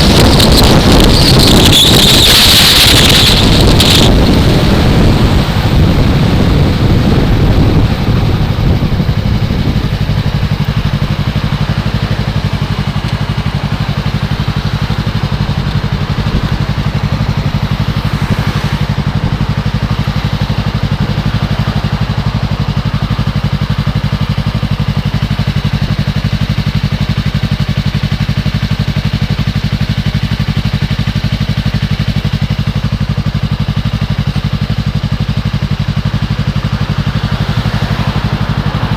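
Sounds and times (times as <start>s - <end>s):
wind rush: 0.0s - 11.3s, 15.3s - 20.0s
motorcycle engine idling: 0.0s - 38.9s.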